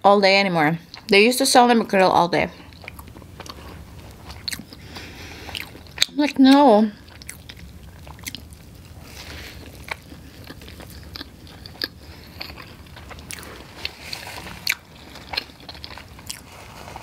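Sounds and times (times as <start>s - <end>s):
chewing with mouth clicks: 2.7s - 6.2s, 7.0s - 16.6s
person biting sandwich: 7.3s - 17.0s.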